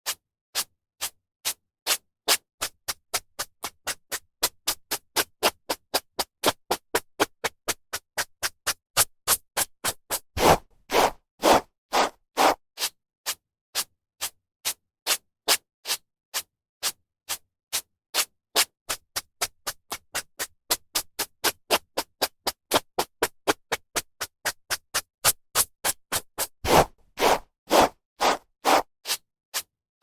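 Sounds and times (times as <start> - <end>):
hairbrush brushing hair: 10.4 - 12.6, 26.7 - 28.9.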